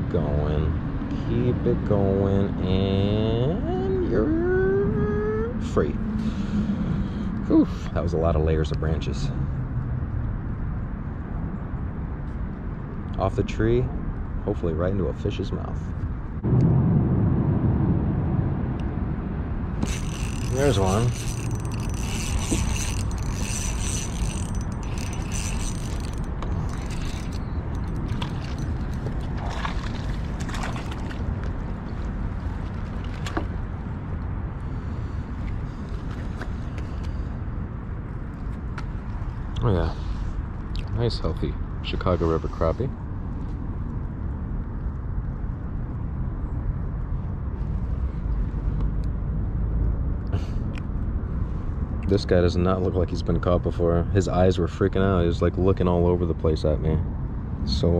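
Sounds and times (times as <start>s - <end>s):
fishing reel gears clicking: 19.8s - 29.1s.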